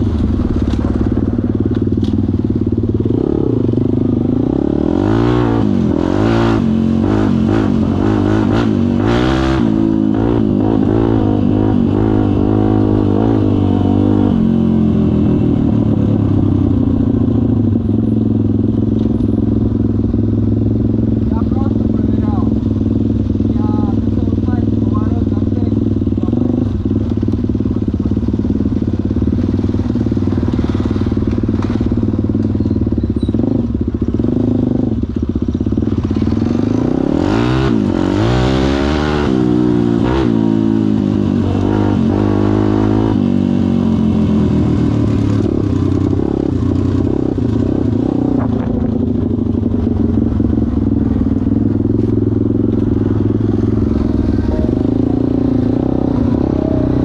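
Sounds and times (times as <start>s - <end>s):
pit bike engine revving: 0.0s - 57.0s.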